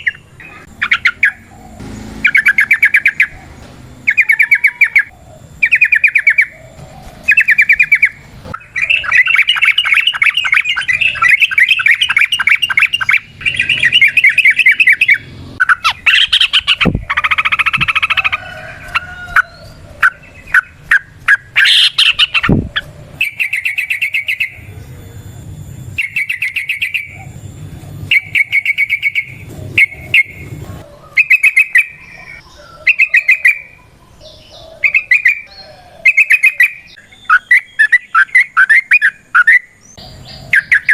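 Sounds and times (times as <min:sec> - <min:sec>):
bird singing rolling trill: 0:00.0 - 0:40.9.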